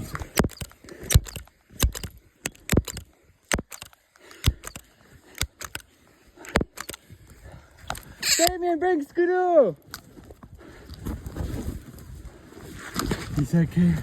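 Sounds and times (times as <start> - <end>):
sharp clicks and knocks: 0.0 - 7.0, 7.8 - 8.6.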